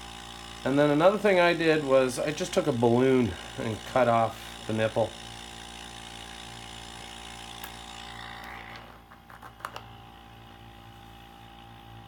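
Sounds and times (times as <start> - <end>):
compressor humming: 0.0 - 12.0.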